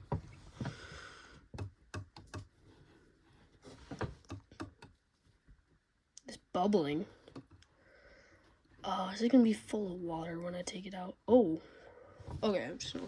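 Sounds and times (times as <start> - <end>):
plastic toy clicks and taps: 1.5 - 2.5, 4.2 - 4.9.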